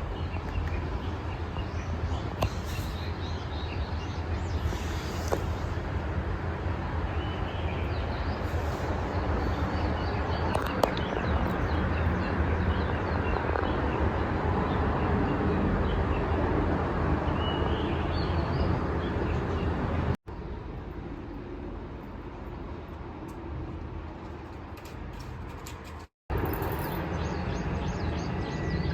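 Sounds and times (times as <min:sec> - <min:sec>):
small birds chirping: 0:00.0 - 0:05.7
low outdoor rumble: 0:18.8 - 0:27.0.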